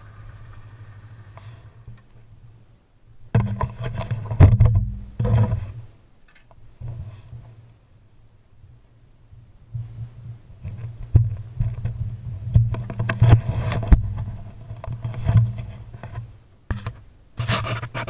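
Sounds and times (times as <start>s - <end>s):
motorcycle engine droning: 0.0s - 2.2s.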